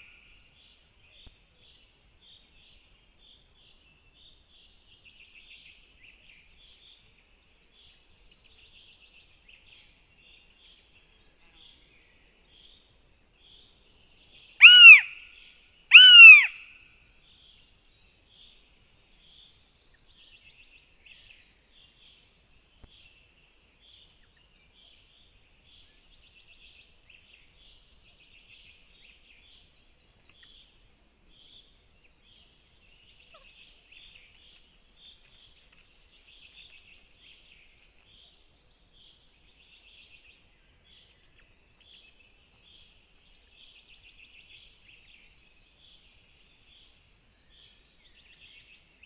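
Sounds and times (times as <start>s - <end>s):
faint bird chirping: 0.0s - 49.0s
hawk calling: 14.6s - 15.1s, 15.9s - 16.6s.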